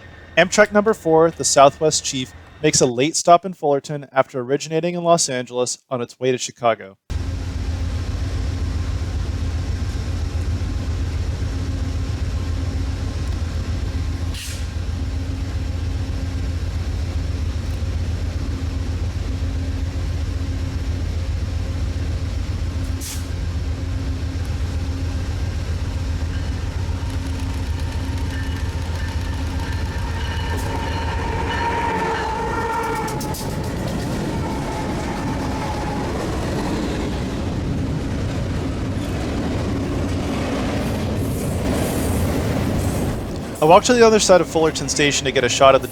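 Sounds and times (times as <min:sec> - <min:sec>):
diesel locomotive rumble: 0:00.0 - 0:03.1, 0:07.1 - 0:45.9
distant multi-tone horn: 0:22.8 - 0:37.5.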